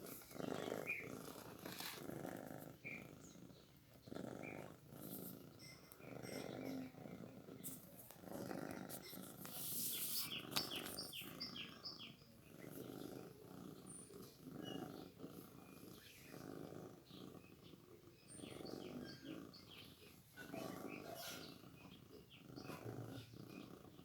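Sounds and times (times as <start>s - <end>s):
cat purring: 0.0s - 24.0s.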